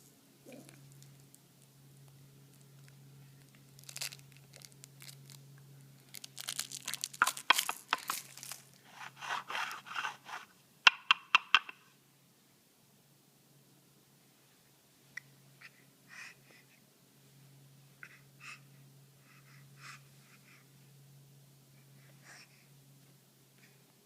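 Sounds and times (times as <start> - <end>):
crinkling and tearing: 2.5 - 5.4, 6.0 - 10.4.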